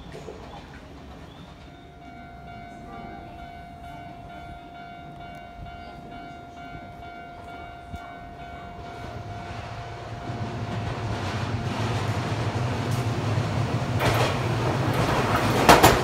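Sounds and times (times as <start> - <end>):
electric train approaching: 0.0 - 16.0
steady high tone: 1.6 - 14.2.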